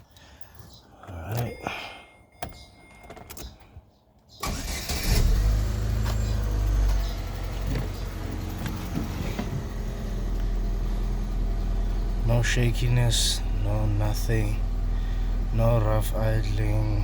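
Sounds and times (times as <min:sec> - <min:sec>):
car engine starting and idling: 0:00.0 - 0:17.0.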